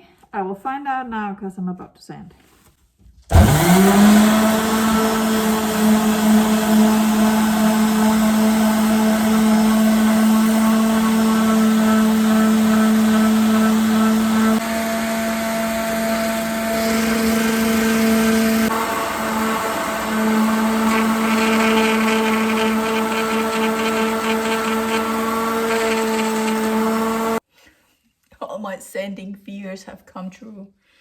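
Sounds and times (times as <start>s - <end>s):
electric sander on wood: 3.3s - 27.4s.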